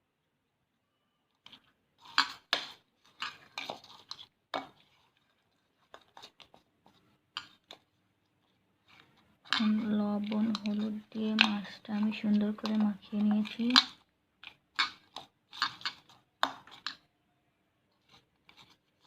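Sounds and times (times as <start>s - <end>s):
fish scraping in a bowl: 2.0s - 7.6s.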